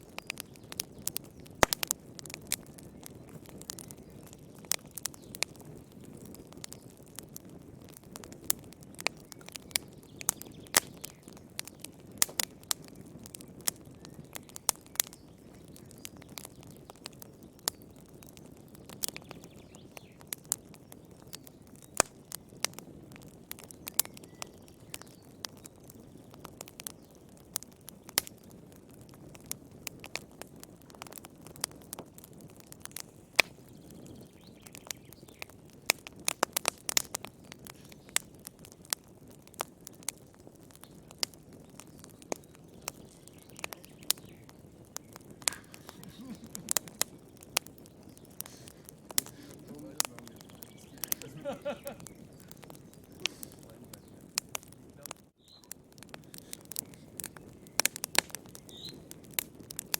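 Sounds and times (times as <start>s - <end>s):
fire popping and snapping: 0.0s - 59.9s
low rush of burning: 0.0s - 59.9s.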